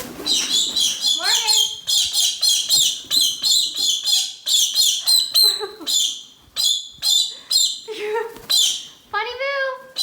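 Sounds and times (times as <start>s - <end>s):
parrot shrill calls: 0.3s - 7.9s.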